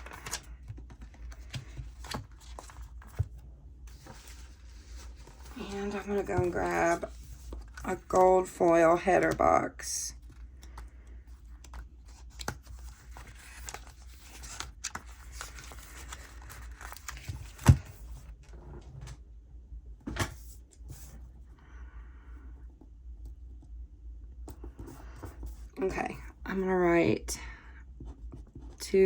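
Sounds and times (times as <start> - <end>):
paper rustling and crinkling: 0.0 - 18.4.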